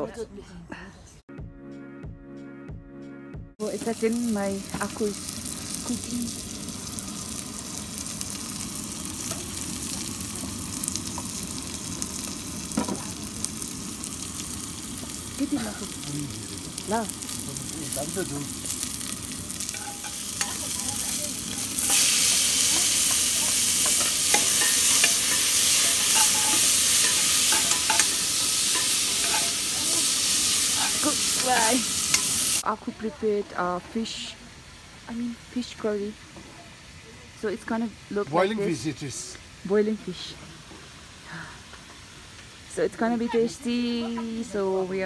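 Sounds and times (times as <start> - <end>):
chillies and onions sizzling: 0.0 - 0.2, 3.6 - 45.0.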